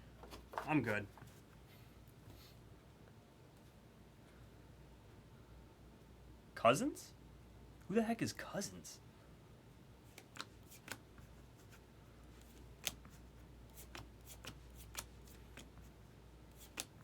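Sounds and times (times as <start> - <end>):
cards being flipped through: 10.1 - 11.0, 12.4 - 15.9, 16.5 - 17.0.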